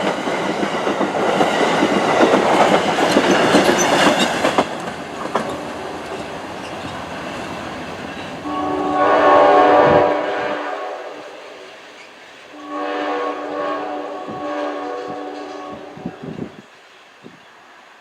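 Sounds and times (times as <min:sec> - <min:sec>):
train wheels clattering on rails: 0:00.0 - 0:09.2
locomotive air horn: 0:08.4 - 0:11.6, 0:12.5 - 0:16.5.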